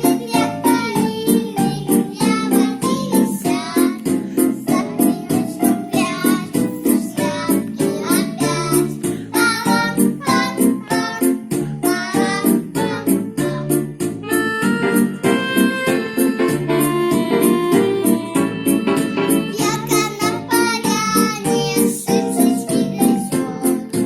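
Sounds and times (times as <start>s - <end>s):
children singing: 0.0s - 13.9s, 19.5s - 24.0s
backing track with keyboard: 0.0s - 24.0s.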